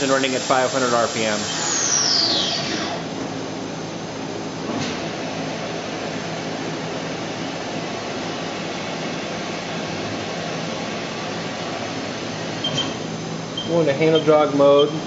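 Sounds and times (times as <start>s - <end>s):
machine spindle humming: 0.0s - 4.4s.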